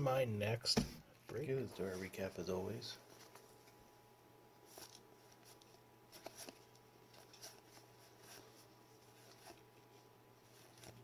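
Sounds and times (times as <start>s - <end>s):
cards tapping and rustling: 4.8s - 9.7s.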